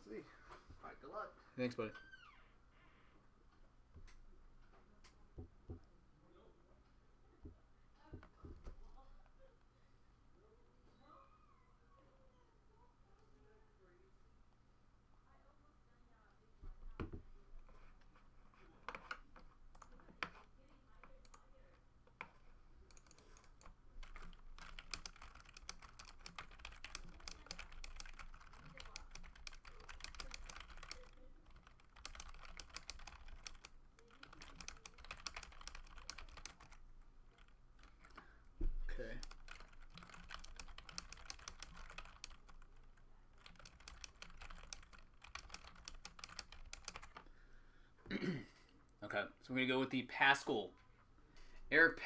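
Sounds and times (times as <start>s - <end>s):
typing on computer keyboard: 18.8s - 21.5s, 22.1s - 38.3s, 39.1s - 47.3s.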